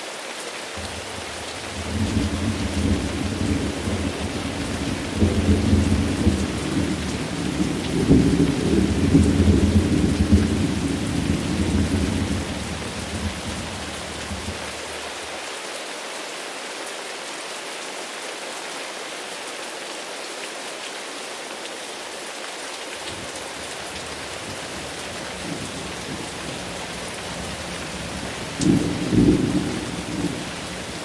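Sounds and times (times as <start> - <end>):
steady rain falling: 0.0 - 31.0
loud thunderclap: 0.8 - 14.8, 23.2 - 31.0
low thunder rumble: 0.8 - 15.2, 23.1 - 31.0.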